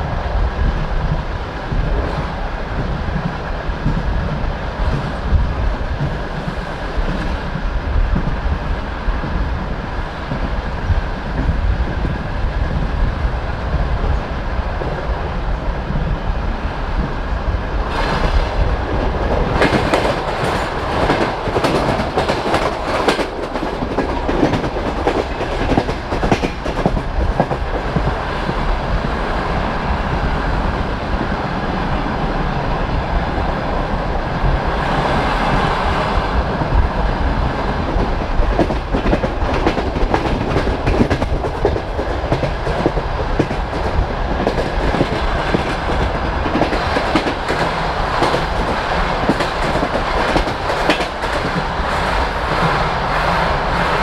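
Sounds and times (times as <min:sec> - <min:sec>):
rapid clicks of train wheels: 0:00.1 - 0:54.0
train wheels clattering on rails: 0:16.9 - 0:31.6, 0:33.4 - 0:54.0.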